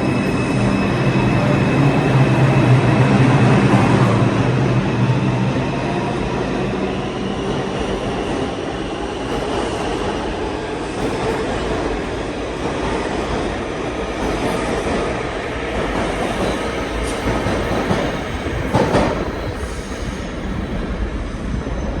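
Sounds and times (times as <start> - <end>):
subway train rumbling on rails: 0.0 - 22.0
train squeal or clank: 15.7 - 21.0.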